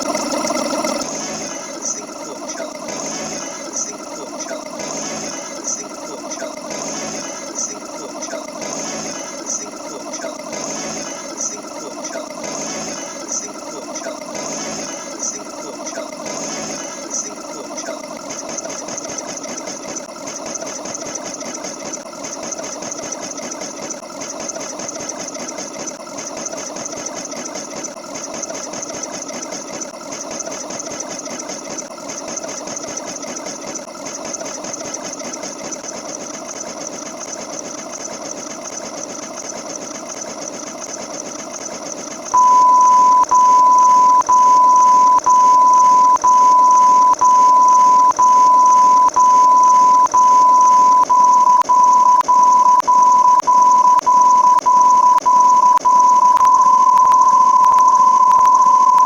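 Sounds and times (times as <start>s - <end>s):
machine mechanical clatter: 0.0s - 42.4s
loud high beep: 42.4s - 59.0s.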